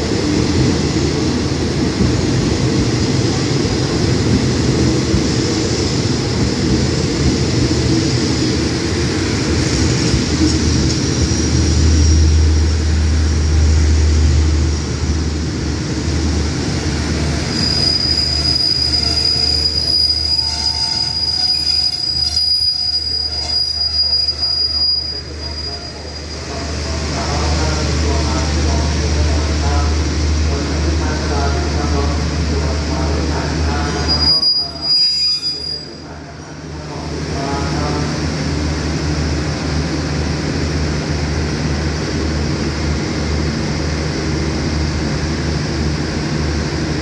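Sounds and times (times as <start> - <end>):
train brakes squealing: 10.0 - 13.0, 17.4 - 26.8, 33.8 - 36.0.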